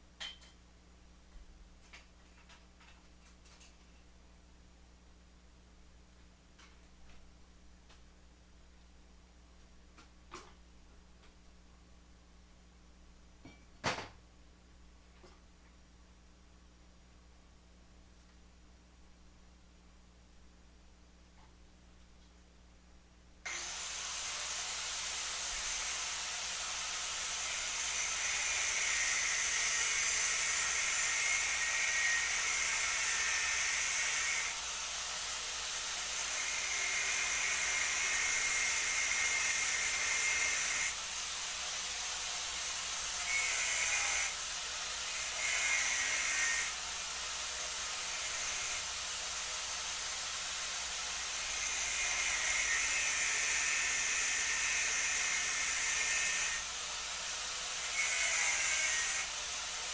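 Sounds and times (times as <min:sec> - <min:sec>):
power tool running with hiss: 0:23.5 - 0:59.9.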